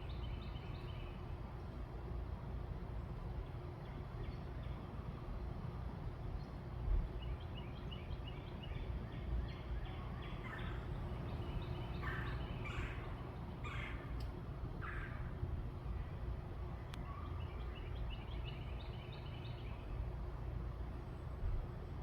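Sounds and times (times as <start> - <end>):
birds calling: 8.0 - 15.4
steady low rumble: 9.0 - 22.0.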